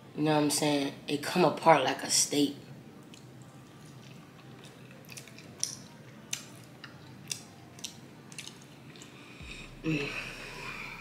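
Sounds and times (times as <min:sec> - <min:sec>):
person chewing with wet smacks: 0:03.0 - 0:09.2.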